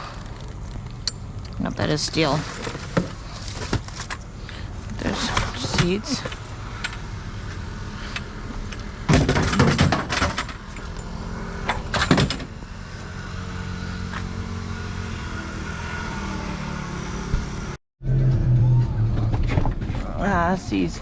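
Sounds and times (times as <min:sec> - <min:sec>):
vehicle engine rumbling: 0:00.0 - 0:21.0
loud rattling clatter: 0:09.1 - 0:10.8.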